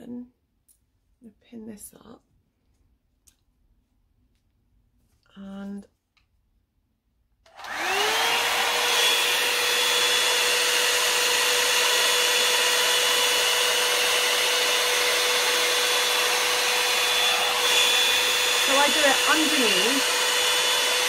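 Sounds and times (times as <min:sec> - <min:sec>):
hot-air brush motor whine: 0:07.5 - 0:21.0.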